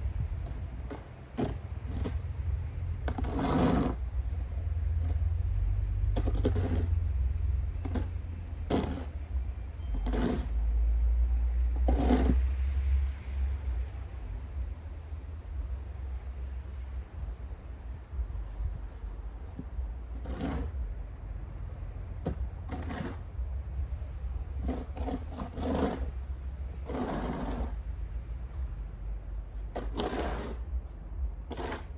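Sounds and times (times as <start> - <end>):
wind on microphone: 0.0 - 2.2, 17.0 - 20.9
shovel scraping snow: 3.1 - 4.0, 6.2 - 6.9, 7.9 - 9.2, 10.0 - 10.5, 11.9 - 12.4, 20.2 - 20.8, 22.7 - 23.2, 24.6 - 26.2, 26.8 - 27.8, 29.7 - 30.7, 31.5 - 31.9.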